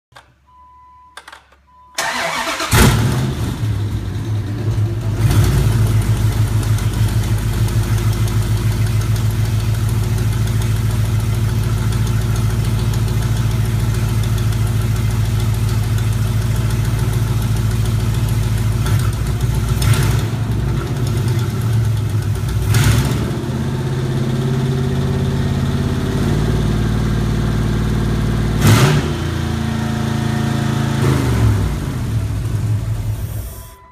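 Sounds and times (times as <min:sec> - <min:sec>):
engine cranking: 0:02.0 - 0:03.2
car engine idling: 0:02.0 - 0:28.6.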